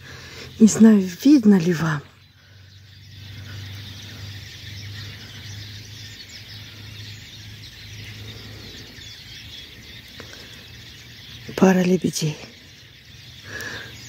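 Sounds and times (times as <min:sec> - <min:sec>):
faint bird calls: 0:00.0 - 0:14.0.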